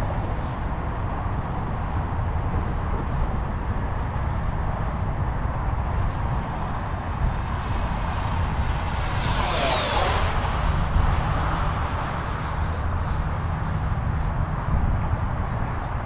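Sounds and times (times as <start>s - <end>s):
electric fan whine: 0.0s - 16.0s
steady rushing air: 6.0s - 15.1s.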